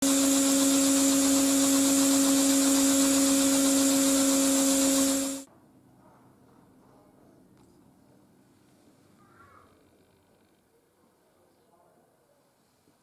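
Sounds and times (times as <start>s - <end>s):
small motor humming: 0.0s - 5.5s.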